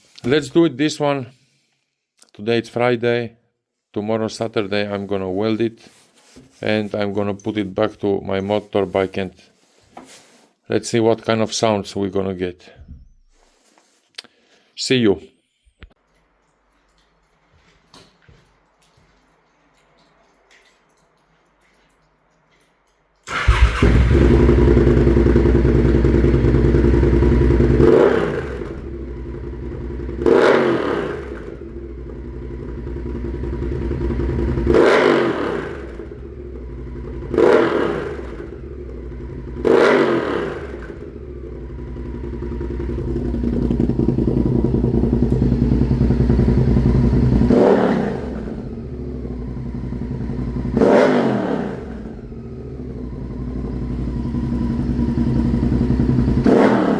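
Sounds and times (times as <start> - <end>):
motorcycle throttle blips: 23.2 - 56.9
motorcycle engine idling loudly: 23.3 - 50.8, 52.2 - 56.8.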